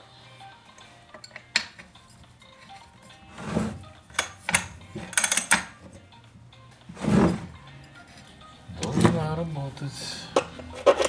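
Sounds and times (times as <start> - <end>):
metal tools clinking and knocking: 1.1 - 3.2, 4.1 - 5.8.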